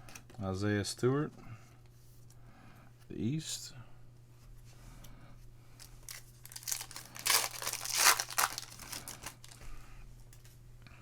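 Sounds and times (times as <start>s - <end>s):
foil wrapper crinkling: 6.0s - 9.6s.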